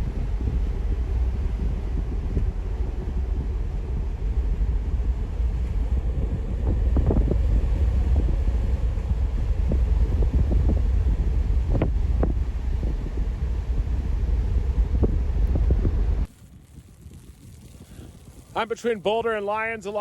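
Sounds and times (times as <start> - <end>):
wind buffeting microphone: 0.0 - 20.0
short crackles: 15.4 - 18.8.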